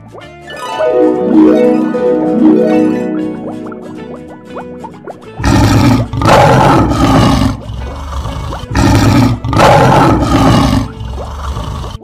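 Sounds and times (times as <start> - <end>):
light children's music: 0.0 - 12.0
cartoon lion roar: 5.4 - 12.0.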